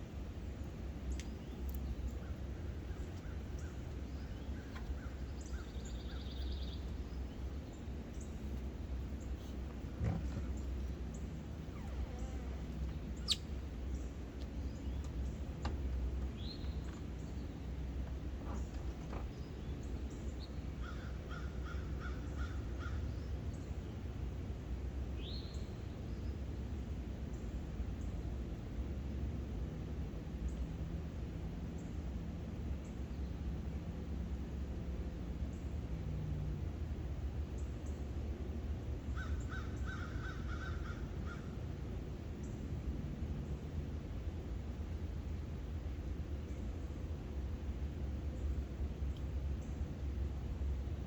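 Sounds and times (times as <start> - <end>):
steady low rumble: 0.0 - 51.0
wild birds chirping: 0.4 - 24.1, 39.0 - 42.7
bird trill: 13.2 - 13.6.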